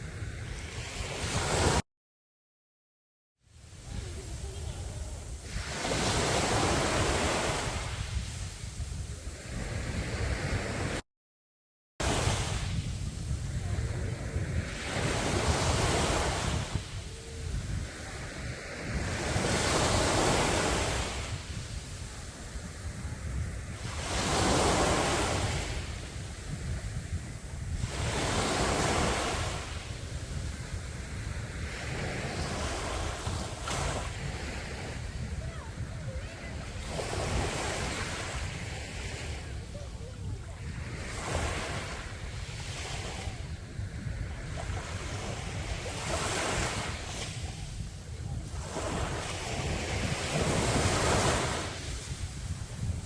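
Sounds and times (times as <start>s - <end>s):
sea waves breaking on a beach: 0.0s - 1.8s, 3.5s - 11.0s, 12.0s - 53.0s
wind buffeting the microphone: 0.0s - 1.8s, 3.6s - 11.0s, 12.0s - 53.0s.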